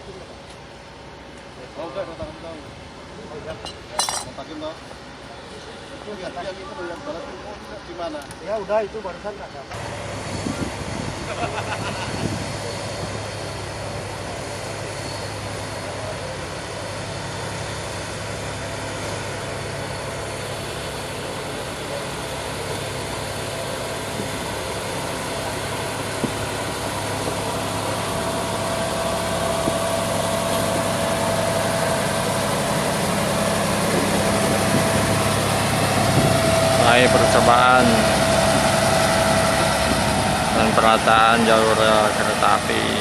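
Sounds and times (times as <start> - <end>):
diesel engine humming: 9.8 - 43.0
steady high whine: 9.8 - 43.0.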